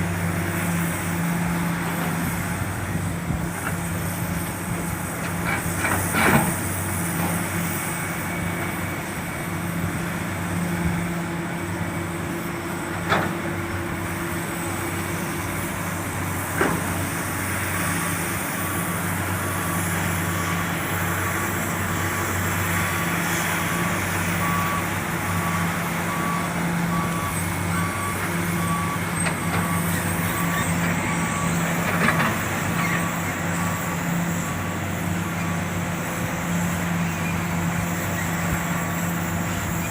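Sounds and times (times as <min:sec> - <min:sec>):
heavy diesel engine running: 0:00.0 - 0:39.9
reversing alarm beeping: 0:19.5 - 0:34.7.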